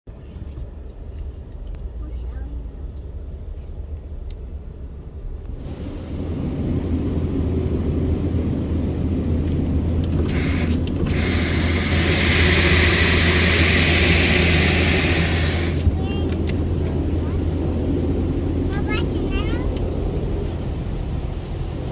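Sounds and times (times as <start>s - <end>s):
car wash low rumble: 0.1s - 21.9s
high-pressure water jets hissing: 5.6s - 21.9s.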